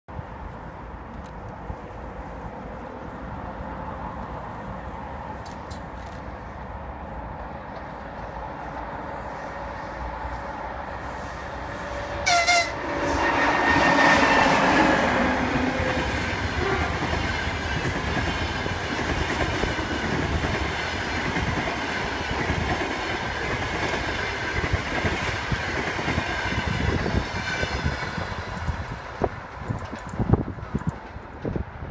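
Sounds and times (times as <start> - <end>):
train wheels rumbling on rails: 0.1 - 31.9
electric locomotive humming: 0.2 - 31.9
train horn blast: 11.7 - 17.1.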